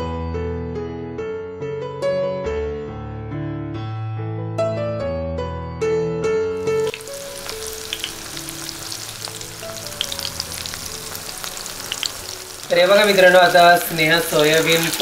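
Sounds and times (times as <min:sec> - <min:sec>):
piano music: 0:00.0 - 0:15.0
food sizzling in hot oil: 0:06.6 - 0:15.0.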